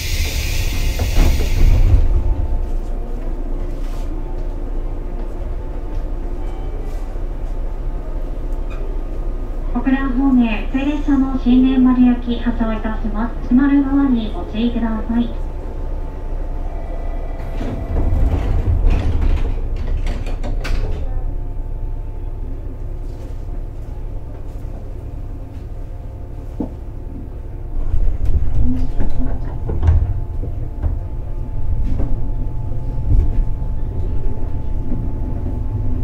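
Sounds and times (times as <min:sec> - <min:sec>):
steady train hum: 0:00.0 - 0:36.0
train low rumble: 0:00.0 - 0:36.0
sliding doors closing: 0:16.2 - 0:21.2.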